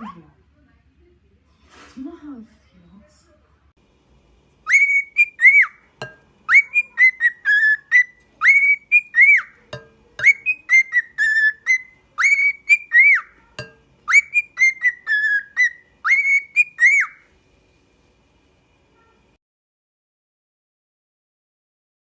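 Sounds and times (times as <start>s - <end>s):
pet bird whistling a tune: 4.6s - 5.8s, 6.5s - 9.6s, 10.2s - 13.3s, 14.0s - 17.3s.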